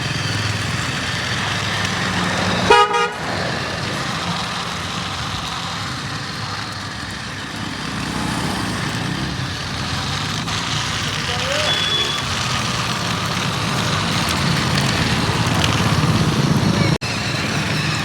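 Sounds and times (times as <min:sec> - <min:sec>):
motor hum: 0:00.0 - 0:18.0
outdoor noise: 0:00.0 - 0:18.0
short horn toot: 0:02.7 - 0:03.2, 0:11.6 - 0:12.2.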